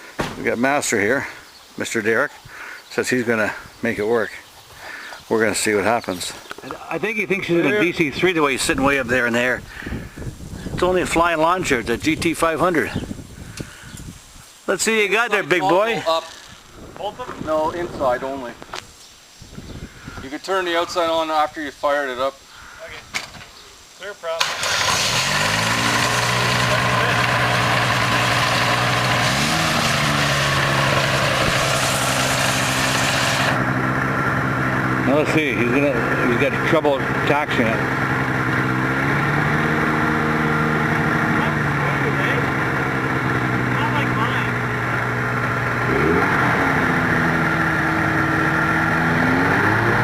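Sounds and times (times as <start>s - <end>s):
light aircraft engine and propeller idling: 24.4s - 29.3s.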